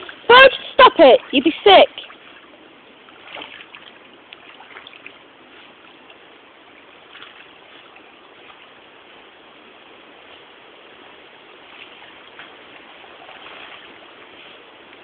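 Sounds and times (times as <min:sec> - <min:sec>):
dog splashing in water: 0:00.0 - 0:05.9, 0:11.7 - 0:14.5
flowing stream water: 0:00.0 - 0:15.0.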